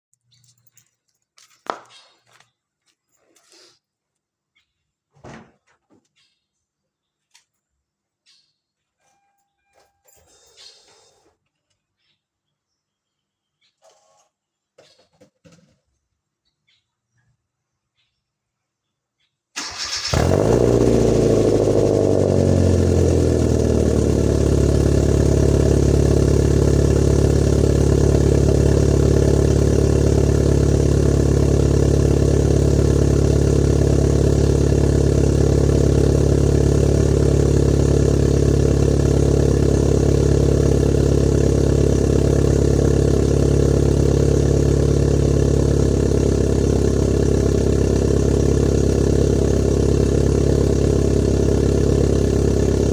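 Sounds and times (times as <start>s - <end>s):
car engine cold start and idle: 19.6s - 52.9s.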